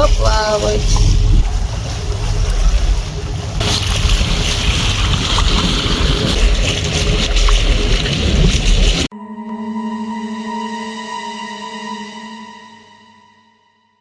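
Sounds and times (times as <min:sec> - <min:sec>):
heavy low rumble: 0:00.0 - 0:09.1
water rushing past hull: 0:00.0 - 0:09.1
wind buffeting microphone: 0:00.0 - 0:09.1.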